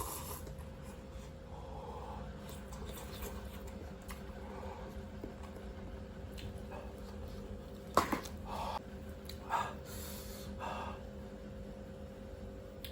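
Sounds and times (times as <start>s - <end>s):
person gasping breaths: 8.4s - 8.8s.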